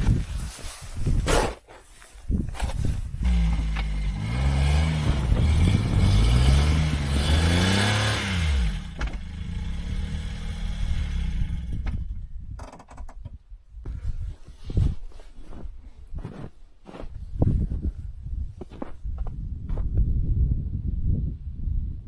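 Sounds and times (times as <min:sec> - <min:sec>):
small van engine revving: 0:03.1 - 0:12.2.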